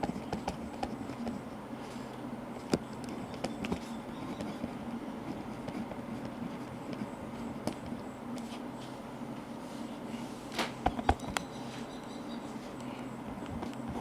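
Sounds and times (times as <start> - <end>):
pen writing on paper: 0.0 - 1.6, 3.1 - 7.2
steady white noise: 0.0 - 14.0.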